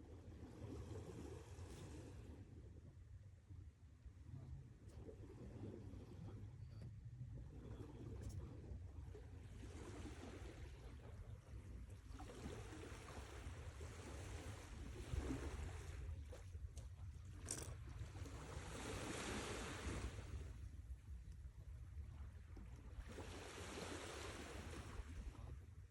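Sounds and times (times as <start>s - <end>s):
sea waves washing on shore: 17.5s - 20.7s, 23.0s - 25.5s.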